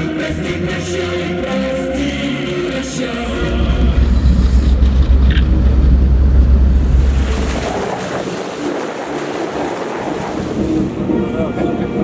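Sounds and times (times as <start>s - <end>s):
sea wash: 2.5s - 12.0s
wind buffeting microphone: 3.5s - 12.0s.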